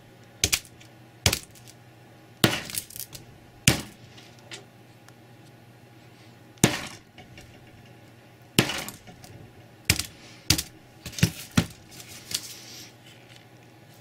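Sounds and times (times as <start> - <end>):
sledgehammer striking phone: 2.4 - 2.9, 3.7 - 4.0, 6.6 - 7.2, 8.6 - 9.2, 9.9 - 11.8.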